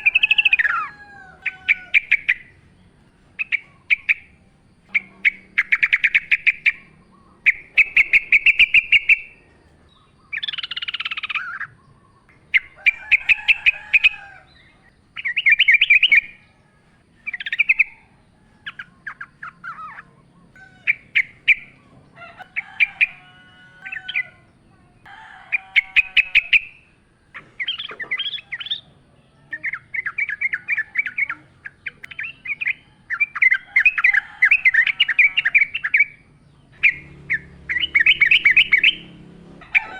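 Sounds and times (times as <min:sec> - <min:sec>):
bird bubbling chatter: 0:27.3 - 0:28.8.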